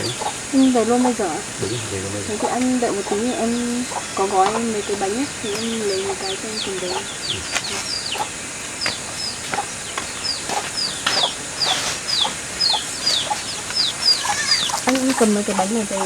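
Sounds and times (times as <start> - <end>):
chickens peeping and clucking: 0.0 - 16.0.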